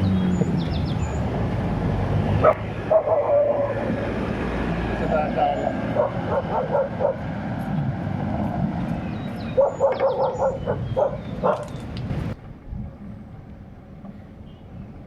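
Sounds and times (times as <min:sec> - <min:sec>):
dog barking: 0:02.4 - 0:03.8, 0:05.9 - 0:07.3, 0:09.5 - 0:11.8.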